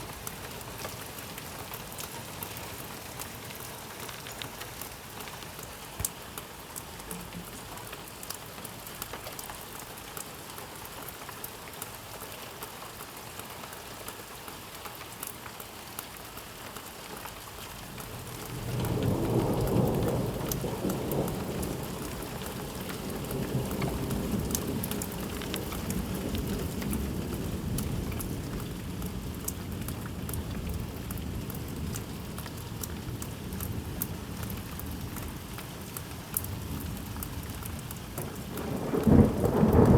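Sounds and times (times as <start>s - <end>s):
steady rain: 0.0s - 39.9s
thunder rolling: 38.3s - 39.9s.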